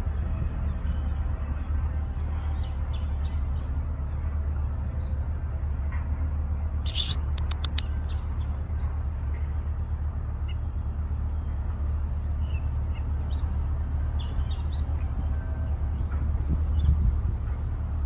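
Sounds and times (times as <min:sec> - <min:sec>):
low outdoor rumble: 0:00.0 - 0:18.0
faint bird chirps: 0:06.8 - 0:07.8
sharp clicks: 0:06.9 - 0:07.9.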